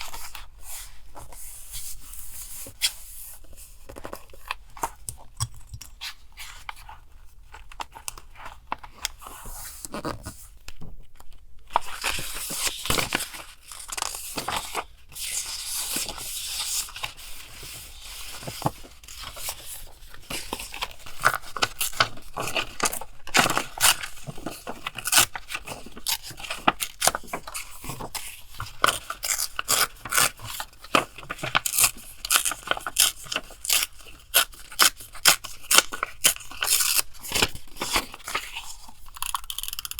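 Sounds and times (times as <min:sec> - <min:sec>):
paper rustling and tearing: 0:11.8 - 0:39.8
scissors cutting paper: 0:31.3 - 0:39.9.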